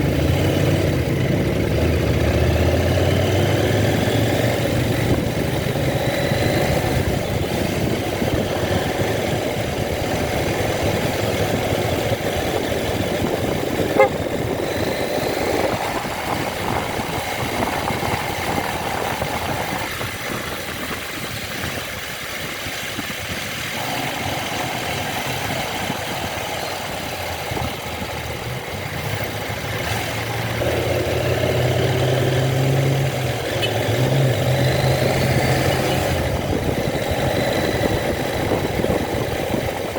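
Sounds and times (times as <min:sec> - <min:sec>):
motorcycle engine: 0:00.0 - 0:39.9
road and wind noise: 0:00.0 - 0:39.9.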